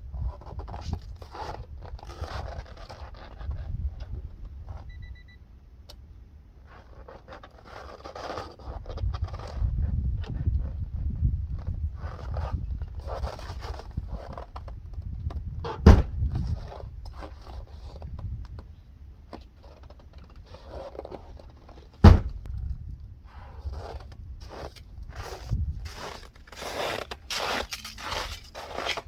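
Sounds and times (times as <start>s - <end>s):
scuffing and crunching noises: 6.6s - 29.0s
loud thumps: 15.6s - 16.4s, 22.0s - 22.6s.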